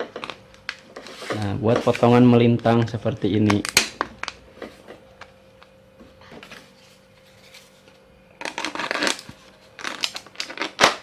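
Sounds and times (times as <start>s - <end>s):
knife scraping through plastic: 0.9s - 2.1s.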